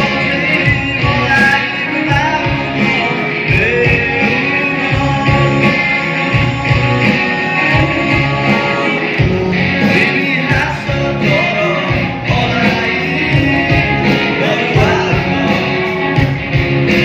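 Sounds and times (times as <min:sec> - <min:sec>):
backing music with steady beat: 0:00.0 - 0:17.0
man singing rock song: 0:00.0 - 0:17.0.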